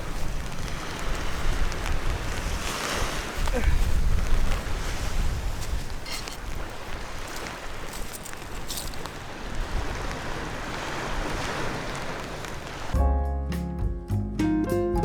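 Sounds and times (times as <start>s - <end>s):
sea surf: 0.0s - 13.0s
wind: 0.0s - 13.8s
plucked guitar-like music: 13.0s - 15.0s.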